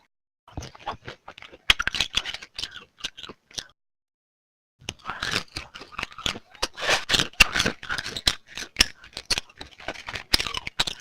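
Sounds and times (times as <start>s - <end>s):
wet chewing with smacking: 0.5s - 3.8s.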